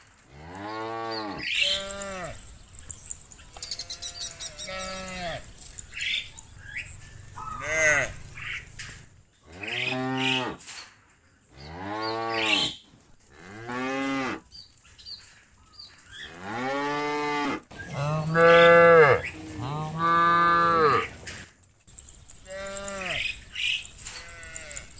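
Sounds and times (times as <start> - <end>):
cattle mooing: 3.7 - 5.5, 7.4 - 8.7, 9.5 - 10.6, 11.6 - 12.8, 16.3 - 21.2, 22.5 - 23.4.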